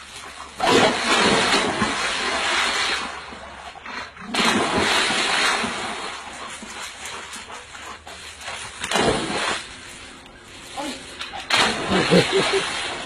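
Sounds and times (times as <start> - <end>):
water rushing and splashing: 0.0 - 3.7, 8.3 - 13.0.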